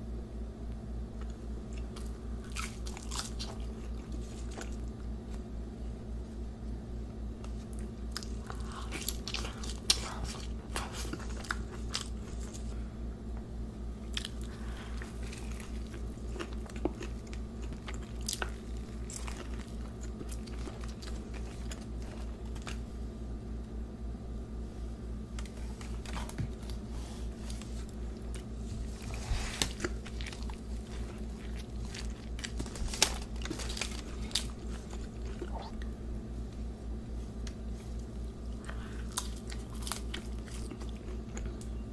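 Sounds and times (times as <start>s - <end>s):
steady low hum: 0.0s - 41.9s
wet chewing: 1.2s - 5.0s, 7.5s - 12.8s, 14.0s - 22.9s, 25.4s - 36.0s, 37.4s - 41.8s
crisp crackles: 25.4s - 35.8s, 37.4s - 41.6s
crunchy bites: 27.5s - 35.9s, 38.6s - 41.8s.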